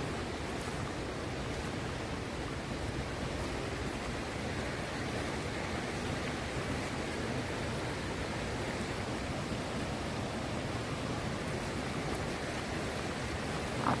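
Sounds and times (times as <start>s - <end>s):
stream rushing: 0.0s - 14.0s.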